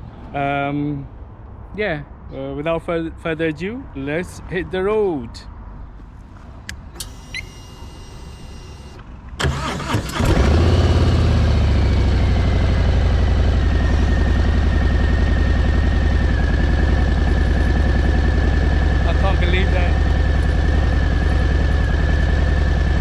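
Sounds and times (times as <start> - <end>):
motorcycle engine starting and idling: 6.7 - 23.0
short electronic tone: 7.0 - 9.0.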